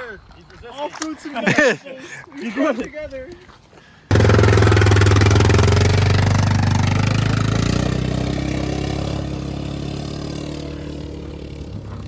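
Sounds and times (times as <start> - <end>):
loud engine running: 4.1 - 12.0.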